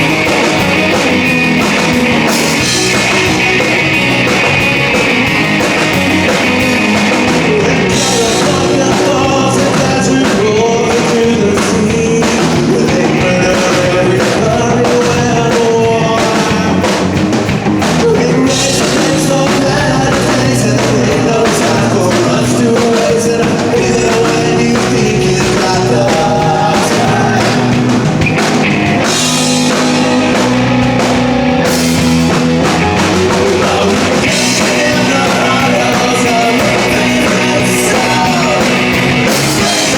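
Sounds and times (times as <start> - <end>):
rock band playing: 0.0 - 39.9
person singing: 5.8 - 17.0, 18.0 - 28.1, 32.8 - 39.9.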